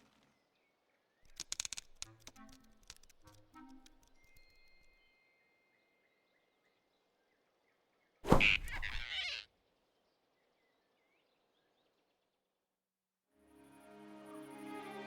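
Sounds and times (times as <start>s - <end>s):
faint bird chirps: 4.1s - 12.0s.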